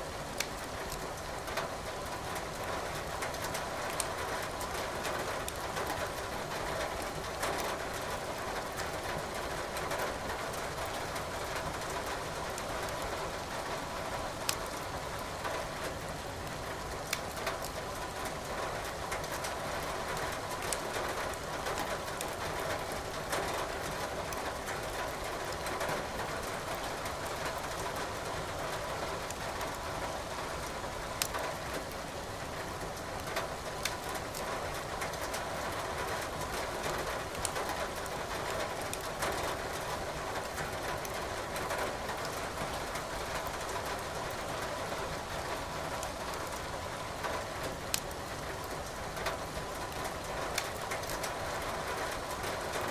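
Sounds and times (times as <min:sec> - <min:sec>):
wood fire crackling and popping: 0:00.3 - 0:01.1, 0:14.5 - 0:14.8, 0:17.0 - 0:17.7, 0:20.6 - 0:20.8, 0:37.3 - 0:38.1, 0:47.9 - 0:48.2.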